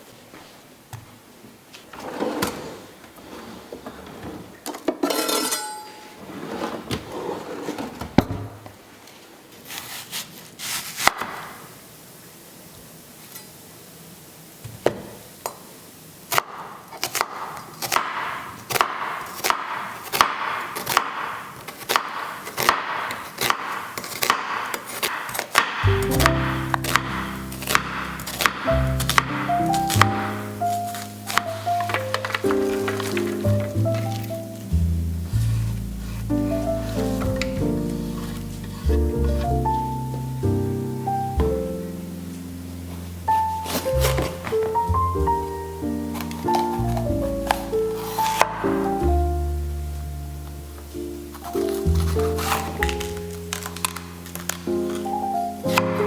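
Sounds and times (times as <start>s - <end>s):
kitchen utensils and dishes clinking: 4.8s - 6.3s
knife chopping on wooden board: 16.4s - 34.3s, 43.6s - 44.6s, 46.2s - 48.8s, 51.7s - 54.0s, 55.7s - 56.0s.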